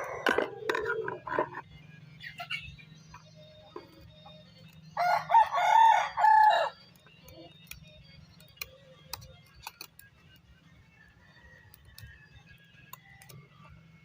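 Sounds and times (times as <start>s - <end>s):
rooster crowing: 0.0s - 1.1s, 5.0s - 6.8s.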